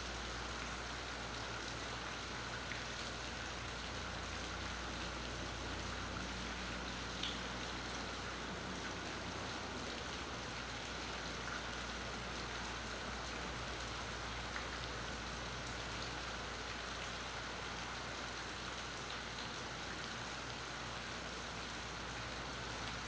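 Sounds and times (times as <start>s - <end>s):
steady rain hiss: 0.0s - 23.0s
faint raindrop ticks: 6.8s - 8.0s.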